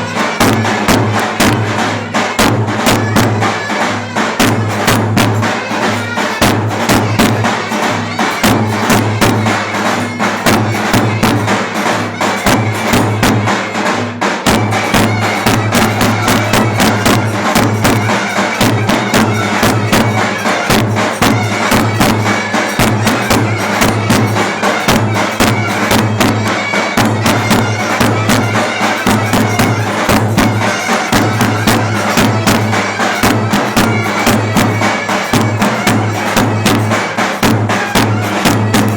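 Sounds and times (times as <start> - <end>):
clarinet folk melody: 0.0 - 13.6, 14.6 - 38.9
fast drum beat: 0.0 - 38.9.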